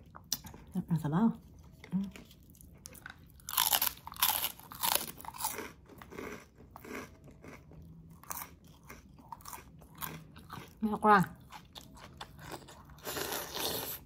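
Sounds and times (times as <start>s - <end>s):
pork rind crunching: 2.6s - 10.8s.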